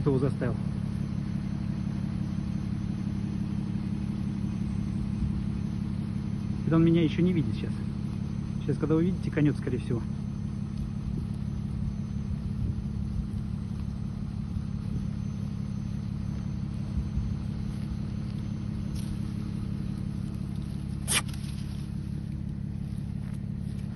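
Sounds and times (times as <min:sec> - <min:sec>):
car engine idling: 0:00.0 - 0:23.9
short crackle: 0:17.5 - 0:23.9.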